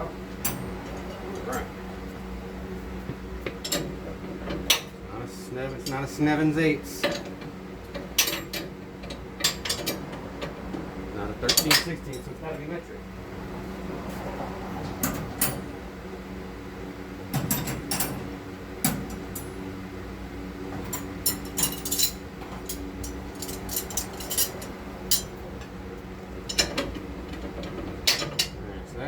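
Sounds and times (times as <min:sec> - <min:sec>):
steady low hum: 0:00.0 - 0:29.0
metal tools clinking: 0:20.9 - 0:25.4.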